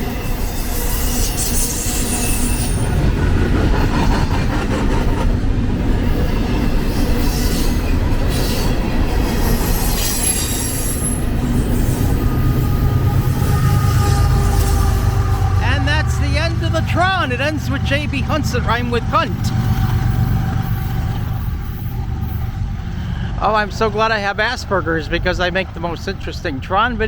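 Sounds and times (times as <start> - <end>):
high wheel squeals: 0.0 - 3.2, 6.1 - 23.0
freight train wheels rumbling: 0.0 - 27.0.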